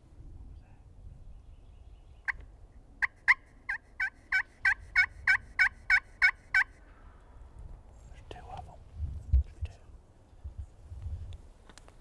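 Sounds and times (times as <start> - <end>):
turkey yelps: 3.0 - 6.7.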